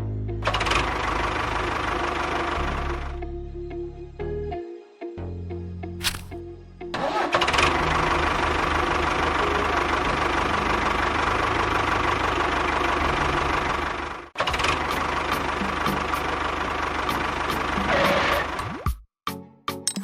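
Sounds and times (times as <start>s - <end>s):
small engine running: 0.4s - 3.2s, 6.0s - 18.6s.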